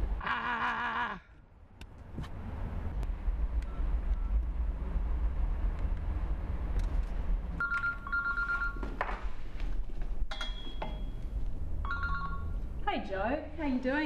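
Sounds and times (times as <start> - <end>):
steady low rumble: 1.4 - 7.6
telephone ringing two-note tone: 7.6 - 8.9, 11.8 - 12.6.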